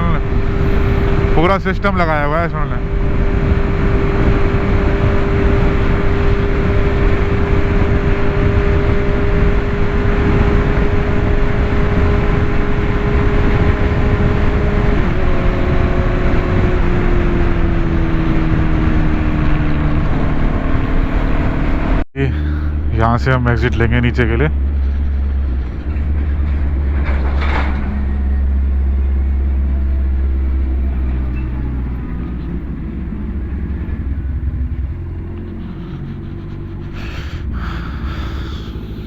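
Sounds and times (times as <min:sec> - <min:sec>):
wind rush: 0:00.0 - 0:22.0
motorcycle engine cruising: 0:00.0 - 0:39.0.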